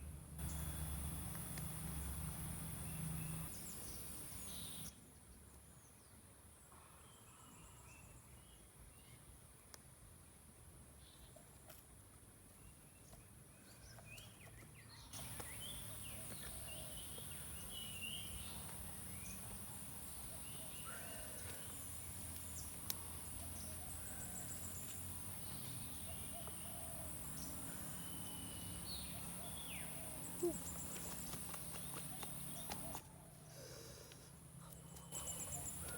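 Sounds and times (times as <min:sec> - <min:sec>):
birds chirping: 0:00.4 - 0:04.9, 0:13.8 - 0:33.0, 0:34.7 - 0:35.9
insect drone: 0:00.4 - 0:04.9.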